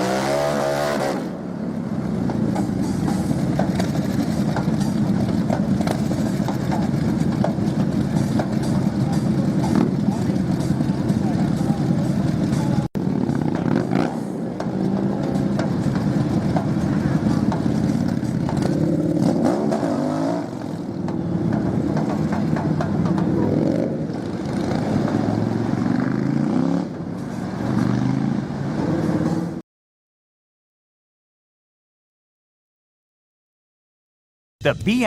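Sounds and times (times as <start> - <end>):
motorcycle engine revving: 0.0 - 29.6.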